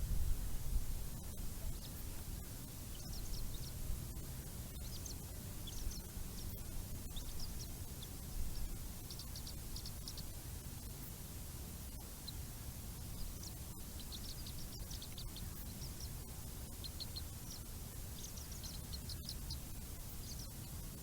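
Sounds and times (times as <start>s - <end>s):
steady low rumble: 0.0s - 21.0s
high bird chirps: 2.8s - 10.5s, 12.2s - 21.0s.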